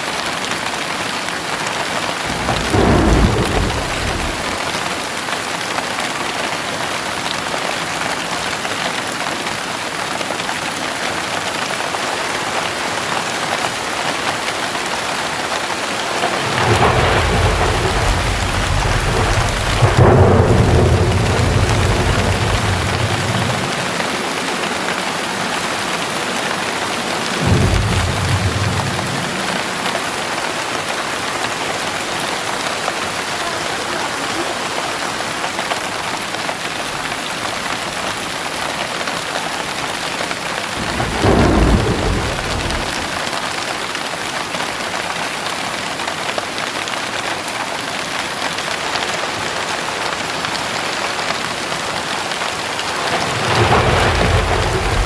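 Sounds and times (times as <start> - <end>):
heavy rain falling: 0.0 - 55.0
low thunder rumbles: 2.2 - 5.1, 16.0 - 32.2, 40.6 - 43.5, 52.0 - 55.0.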